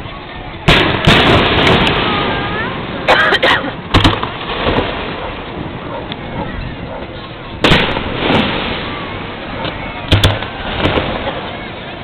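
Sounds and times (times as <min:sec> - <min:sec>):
rolling rumble: 0:00.0 - 0:12.0
fireworks bursting: 0:00.6 - 0:03.1, 0:03.8 - 0:05.9, 0:07.6 - 0:12.0.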